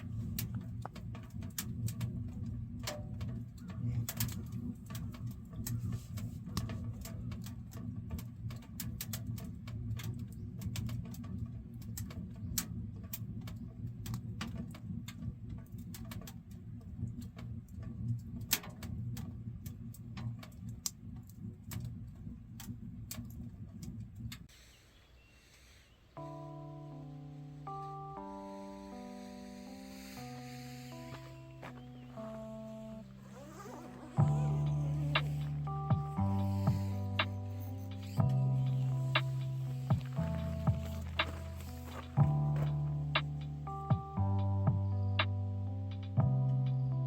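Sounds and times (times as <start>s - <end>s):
low fire rumble: 0.0s - 24.5s, 30.2s - 47.0s
wood fire crackling and popping: 34.1s - 43.5s.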